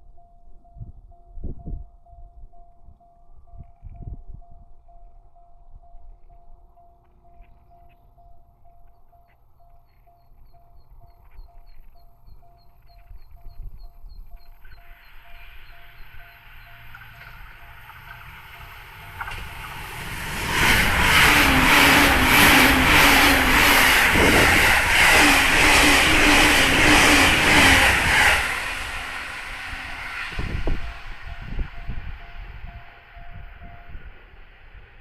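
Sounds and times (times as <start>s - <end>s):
electric train passing at speed: 0.0s - 35.0s
level-crossing warning bell: 0.0s - 35.0s
wheels clattering over rails: 15.4s - 32.4s.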